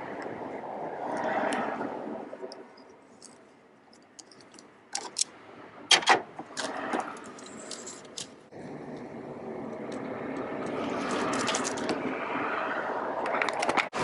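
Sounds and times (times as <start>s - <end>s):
metal parts clinking and rattling: 2.7s - 5.3s, 6.6s - 8.4s, 11.1s - 12.0s.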